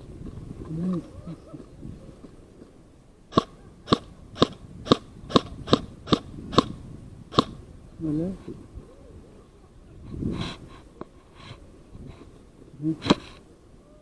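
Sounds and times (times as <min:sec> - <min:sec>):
airsoft rifle shots: 0:03.3 - 0:07.6.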